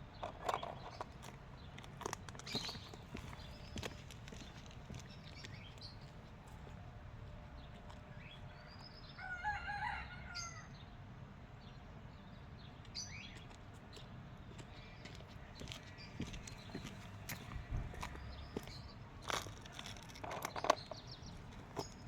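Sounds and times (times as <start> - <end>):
small birds chirping: 0.0 - 6.8, 11.6 - 22.0
rooster crowing: 8.5 - 10.8
low steady background rumble: 10.0 - 22.0.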